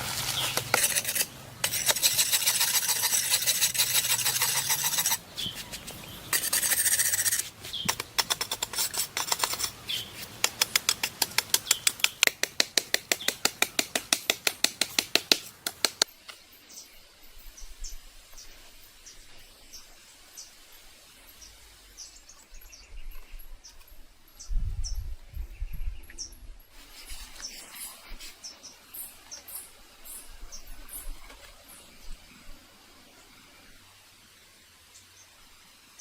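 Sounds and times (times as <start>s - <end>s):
rapid loud taps: 10.4s - 16.1s.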